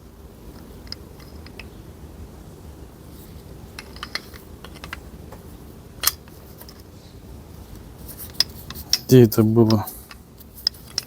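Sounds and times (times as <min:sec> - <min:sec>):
metal gearbox parts clicking: 0:03.8 - 0:05.0.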